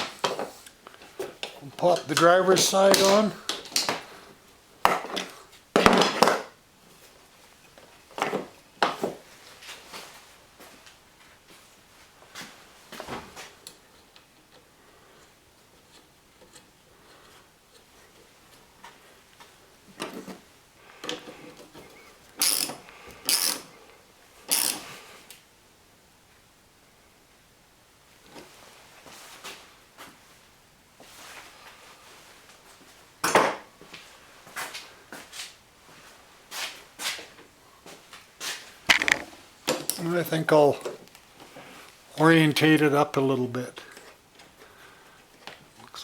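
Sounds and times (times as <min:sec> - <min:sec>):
socket ratchet clicking: 0:22.4 - 0:23.7, 0:24.5 - 0:24.8, 0:38.9 - 0:39.2.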